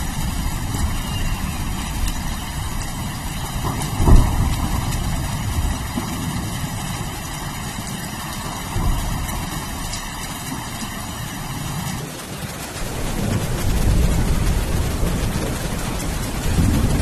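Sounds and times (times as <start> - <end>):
low thunder rumbling: 0.0 - 17.0
steady rain hiss: 0.0 - 17.0.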